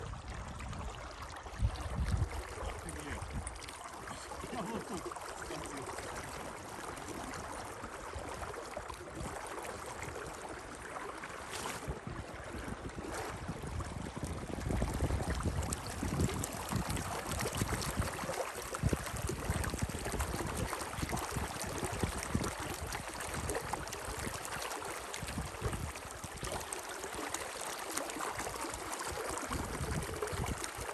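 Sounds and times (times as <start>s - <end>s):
wind buffeting microphone: 0.0s - 3.6s, 11.8s - 24.4s, 29.5s - 30.8s
flowing water: 0.0s - 30.9s.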